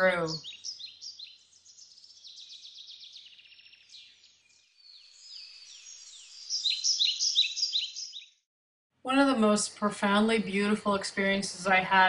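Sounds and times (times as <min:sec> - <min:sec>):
songbirds chirping and trilling: 0:00.0 - 0:08.5.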